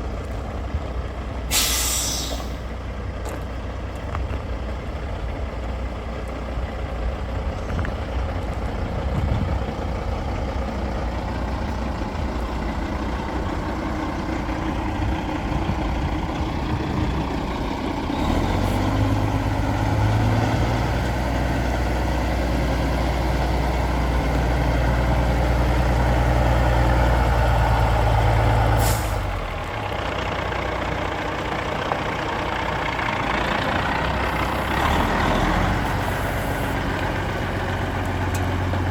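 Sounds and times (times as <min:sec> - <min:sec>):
diesel truck engine running: 0:00.0 - 0:38.9
short air hiss: 0:01.5 - 0:02.6, 0:28.8 - 0:29.2.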